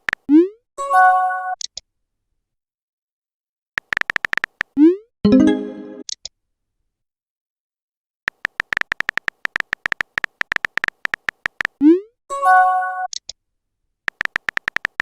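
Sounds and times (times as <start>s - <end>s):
keyboard typing clicks: 3.8s - 6.2s, 8.3s - 11.8s, 14.1s - 15.0s
chime-like chord: 5.3s - 6.0s.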